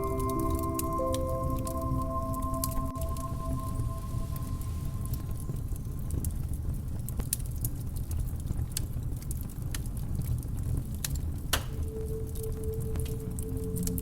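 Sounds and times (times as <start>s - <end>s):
held musical tone: 0.0s - 6.0s, 11.8s - 14.0s
low rumble: 0.0s - 7.0s
faint clicks and crackles: 4.4s - 14.0s.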